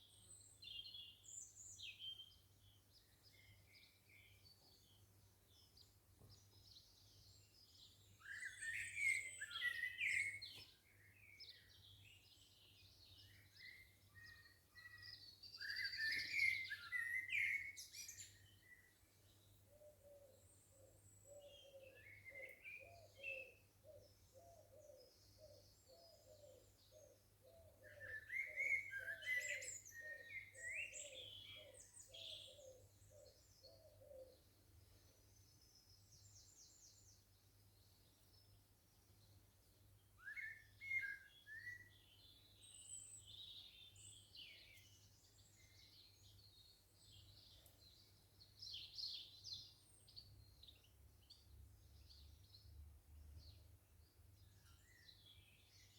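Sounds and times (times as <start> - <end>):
songbirds warbling: 19.7 - 37.2.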